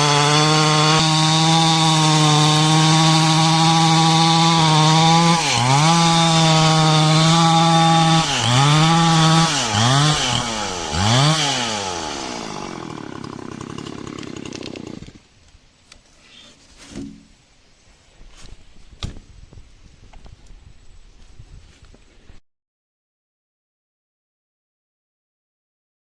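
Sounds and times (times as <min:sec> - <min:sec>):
chainsaw sawing wood: 0:00.0 - 0:15.3.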